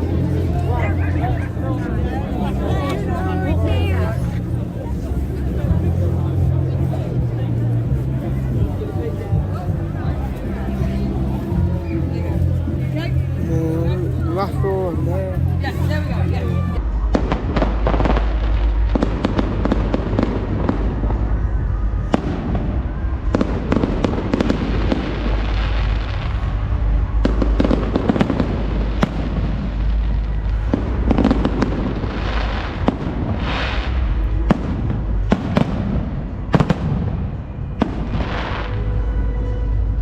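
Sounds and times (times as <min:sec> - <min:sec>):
continuous low rumble: 0:00.0 - 0:40.0
firework bangs and cracks: 0:17.1 - 0:39.0.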